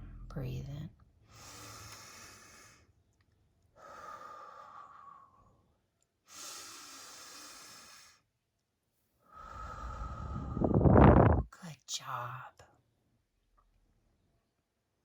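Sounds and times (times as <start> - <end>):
woman breathing slowly and deeply: 1.2 - 3.0, 3.7 - 5.6, 6.3 - 8.2, 9.3 - 11.4.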